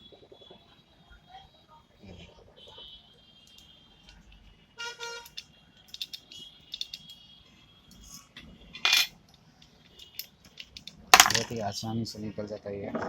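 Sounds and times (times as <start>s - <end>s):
metal clinks: 5.3s - 7.1s, 8.9s - 9.1s.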